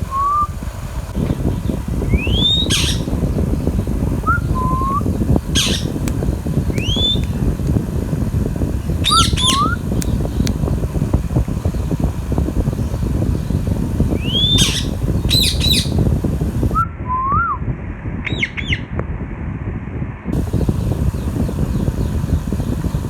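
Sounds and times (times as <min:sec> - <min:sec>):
parakeet chirping and whistling: 0:00.0 - 0:00.5, 0:01.2 - 0:07.4, 0:09.0 - 0:10.4, 0:14.2 - 0:16.1
low rumbling noise: 0:00.0 - 0:23.0.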